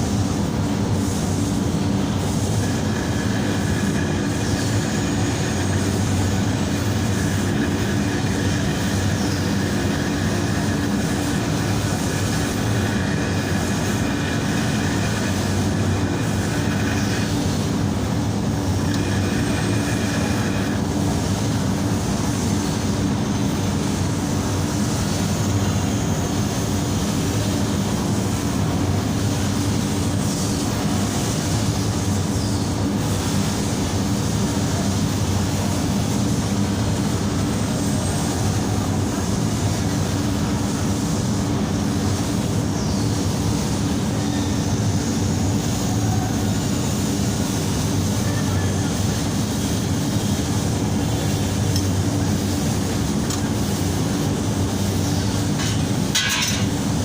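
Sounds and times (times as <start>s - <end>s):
faint high whine: 0.0s - 31.1s
mechanical drone: 0.0s - 57.0s.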